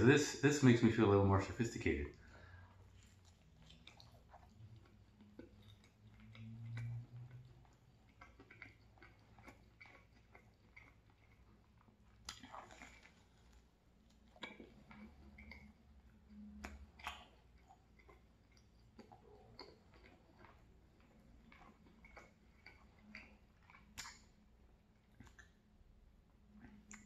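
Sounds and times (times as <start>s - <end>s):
chewing with wet mouth clicks: 1.8s - 27.0s
biting into pizza: 2.9s - 15.8s.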